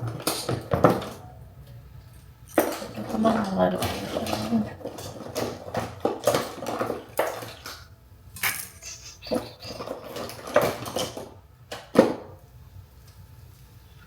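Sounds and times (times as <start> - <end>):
makeup items clicking and clattering: 2.6 - 7.8.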